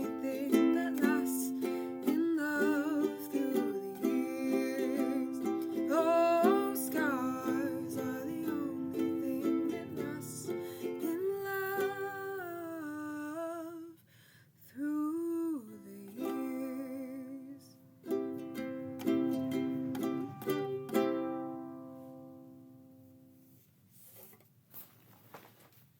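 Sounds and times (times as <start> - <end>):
ukulele playing: 0.0 - 12.8, 16.1 - 23.2
wordless singing: 0.0 - 14.0.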